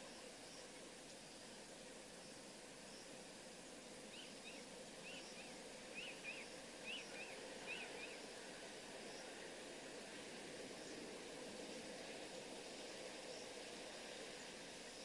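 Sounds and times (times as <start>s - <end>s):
steady outdoor hiss: 0.0s - 15.0s
bird calling in paired chirps: 4.1s - 8.2s.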